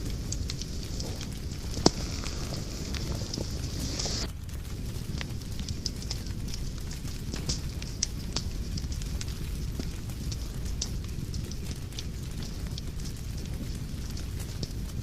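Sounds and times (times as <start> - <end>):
low rumble: 0.0 - 11.2
fire crackling and popping: 0.0 - 15.0.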